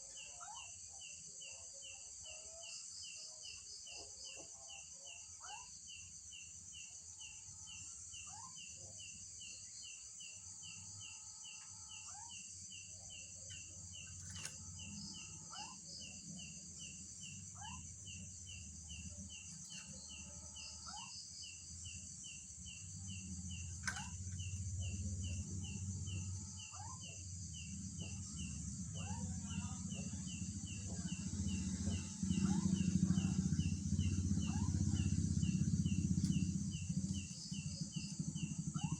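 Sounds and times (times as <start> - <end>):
insect chirping: 0.0 - 38.9
low rumble: 21.7 - 38.9.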